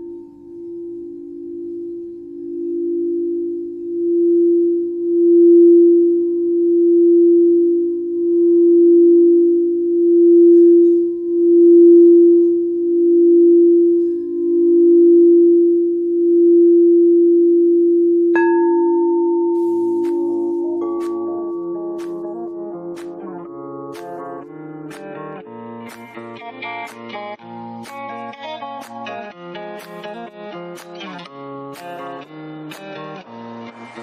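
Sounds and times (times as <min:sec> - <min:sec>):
singing bowl low tone: 0:00.0 - 0:24.7
higher singing bowl struck: 0:18.4 - 0:23.0.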